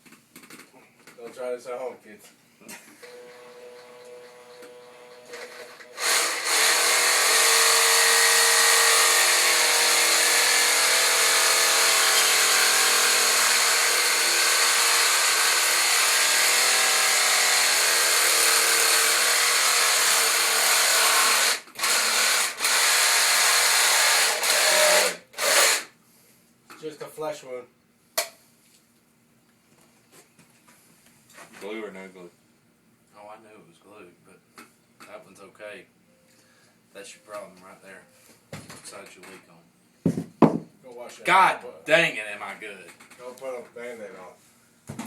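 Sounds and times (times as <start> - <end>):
power tool cutting pipe: 3.0 - 25.9.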